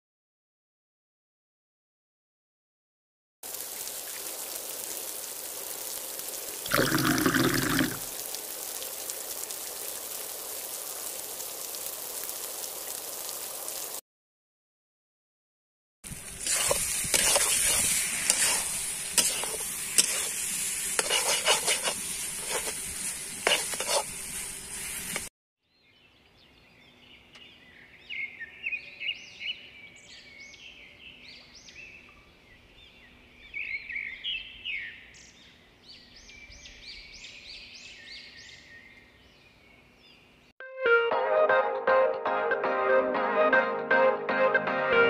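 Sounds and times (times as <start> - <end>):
curry sizzling in a wok: 3.4 - 6.7, 7.5 - 14.0, 16.1 - 25.3
spatula scraping a pan: 16.3 - 25.3
birds singing and chirping: 25.8 - 40.4.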